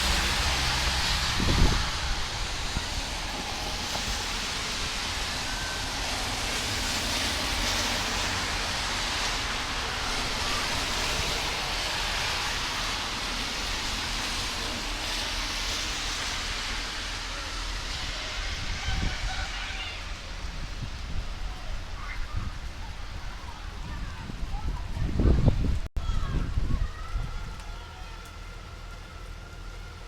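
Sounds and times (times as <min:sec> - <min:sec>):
low rumble: 0:00.0 - 0:07.3
rain hiss: 0:00.0 - 0:30.0.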